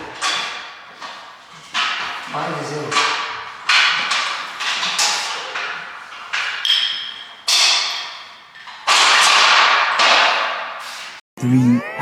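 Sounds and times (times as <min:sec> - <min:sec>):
sharp rattling knocks: 0:00.0 - 0:11.2.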